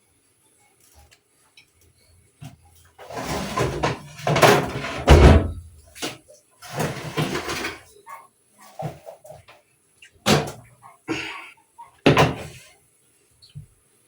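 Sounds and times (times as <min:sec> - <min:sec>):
pots and utensils scraping and knocking: 0:03.0 - 0:08.0, 0:08.6 - 0:09.4.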